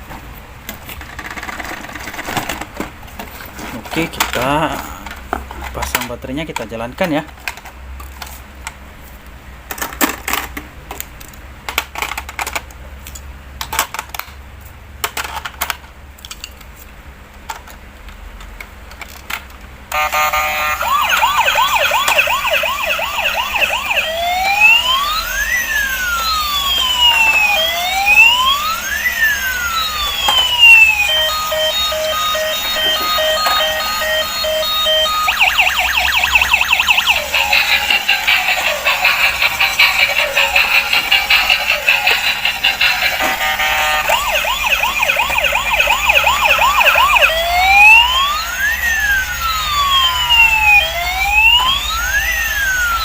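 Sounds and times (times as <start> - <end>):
electronic toy siren: 19.9 - 53.0.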